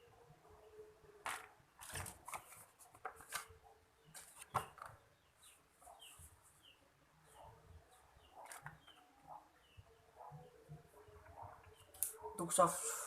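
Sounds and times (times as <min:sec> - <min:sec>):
bird chirping: 0:03.9 - 0:12.2.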